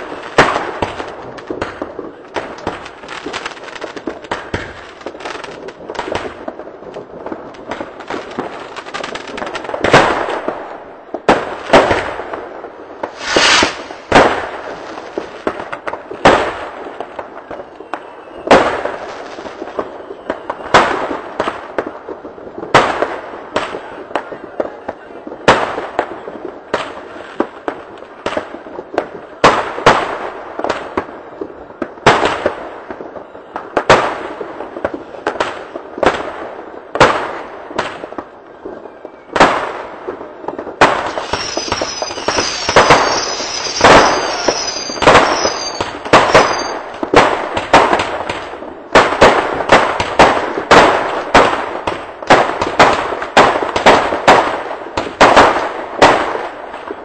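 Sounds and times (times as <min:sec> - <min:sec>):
fireworks bangs and crackles: 0:00.0 - 0:57.0
firework whistles: 0:13.0 - 0:15.4, 0:17.4 - 0:21.0, 0:40.8 - 0:47.0.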